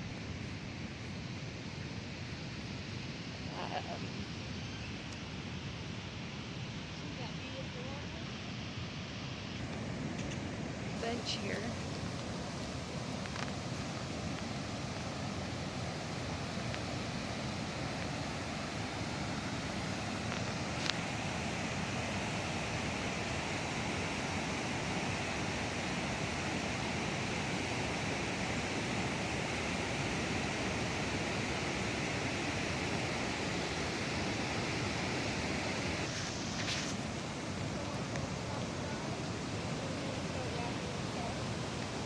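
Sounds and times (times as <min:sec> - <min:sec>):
waterfall roaring: 0:09.6 - 0:42.0.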